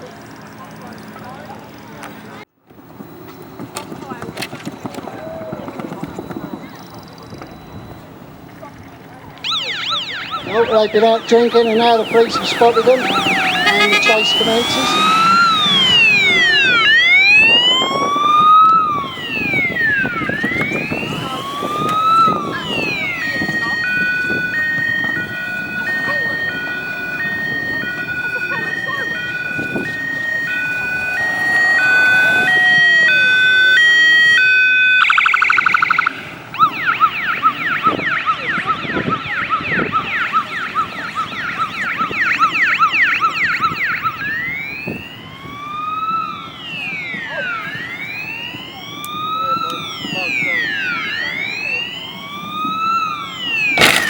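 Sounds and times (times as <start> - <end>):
police siren wailing: 3.5 - 54.0
low vehicle rumble: 10.3 - 35.0.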